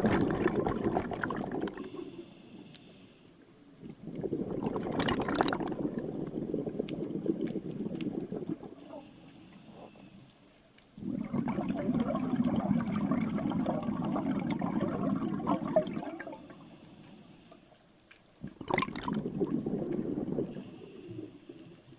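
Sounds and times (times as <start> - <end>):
diver breathing through regulator: 1.7 - 3.4, 8.8 - 10.6, 16.3 - 17.7, 20.0 - 21.9.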